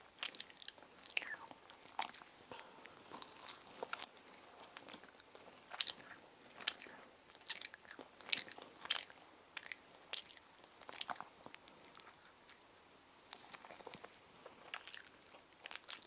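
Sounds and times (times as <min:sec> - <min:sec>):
child chewing: 0:00.0 - 0:16.0.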